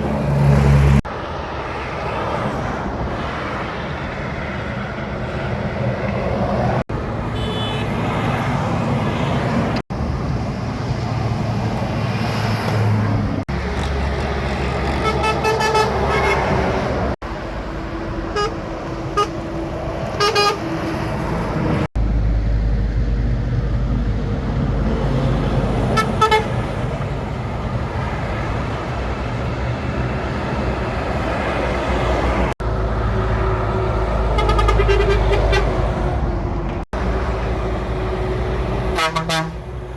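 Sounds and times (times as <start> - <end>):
heavy trucks passing: 0.0 - 39.9
truck horn blasts: 7.3 - 8.2, 13.7 - 16.9, 17.7 - 21.7, 25.9 - 26.7, 33.4 - 36.0, 38.7 - 39.9.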